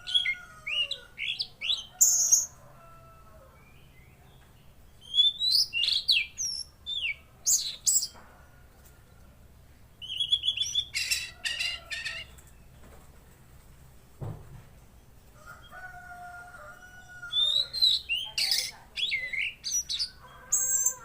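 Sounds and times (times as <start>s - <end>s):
songbird chirping and whistling: 0.0s - 2.6s, 4.9s - 8.2s, 10.0s - 12.4s, 16.8s - 21.0s.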